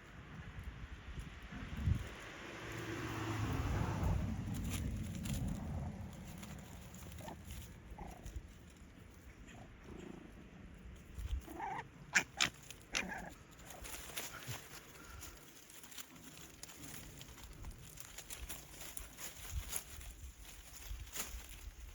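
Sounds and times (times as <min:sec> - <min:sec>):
faint low rumble: 0:00.0 - 0:21.9
young canid squeaking and yelping: 0:11.2 - 0:13.3.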